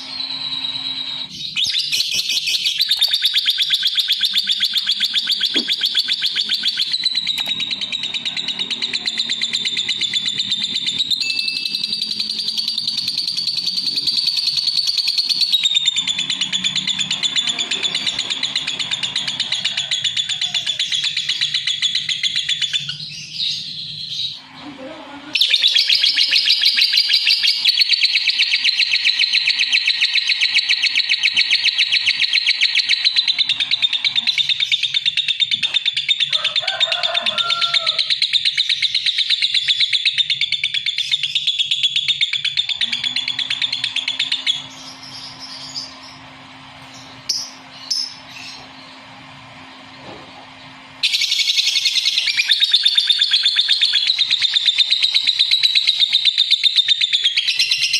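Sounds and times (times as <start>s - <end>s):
lovebird chattering: 0.0s - 24.5s, 25.3s - 49.0s, 51.0s - 57.9s.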